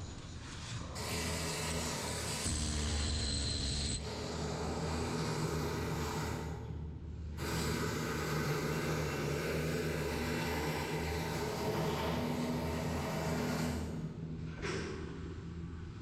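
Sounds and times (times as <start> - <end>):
welding machine hum: 1.4 - 4.0.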